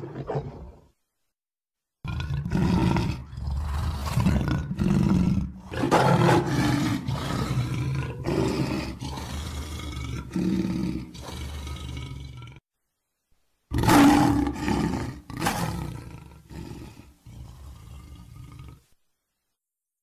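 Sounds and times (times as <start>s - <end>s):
lion roaring: 0.0s - 0.9s, 2.0s - 12.6s, 13.7s - 18.9s.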